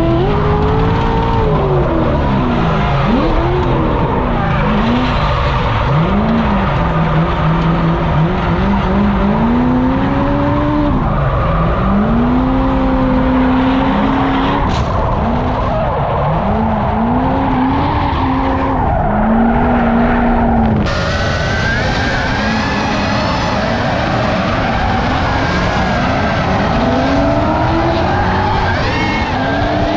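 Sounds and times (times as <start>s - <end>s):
car engine revving: 0.0s - 29.9s
tires screeching: 0.0s - 29.9s.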